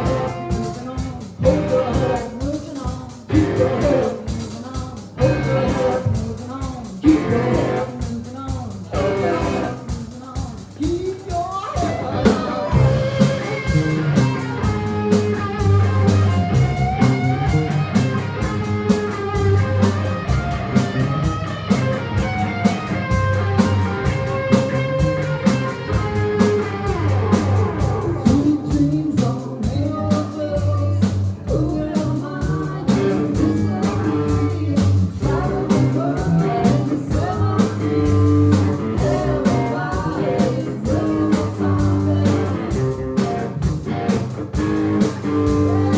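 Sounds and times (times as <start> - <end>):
band playing blues-rock: 0.0 - 45.9
bending electric guitar notes: 5.2 - 6.1, 8.9 - 9.8, 11.8 - 28.6.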